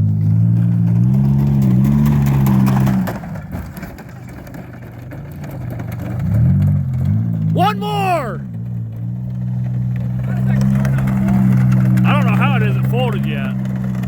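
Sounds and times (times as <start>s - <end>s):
loud car engine revving: 0.0s - 3.3s, 6.2s - 14.0s.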